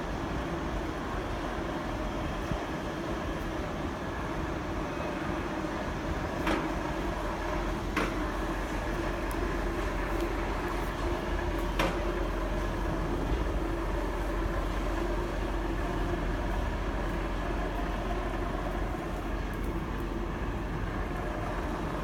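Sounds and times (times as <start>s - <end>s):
truck diesel engine running: 6.8s - 22.0s.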